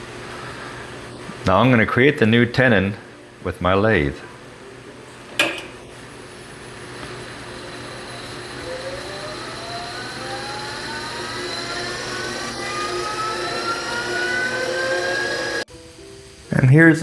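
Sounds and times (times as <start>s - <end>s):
lathe motor whining: 6.4s - 15.7s.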